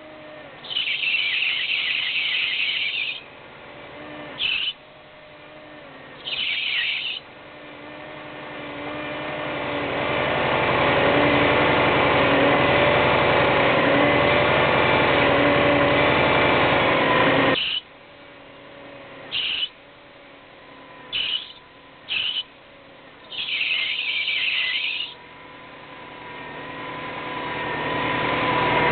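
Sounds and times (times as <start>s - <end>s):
power steering pump whining: 0.0s - 28.9s
power steering pump squealing: 0.5s - 3.3s, 4.4s - 4.8s, 6.1s - 7.3s, 17.5s - 17.9s, 19.3s - 19.8s, 21.1s - 22.5s, 23.2s - 25.2s.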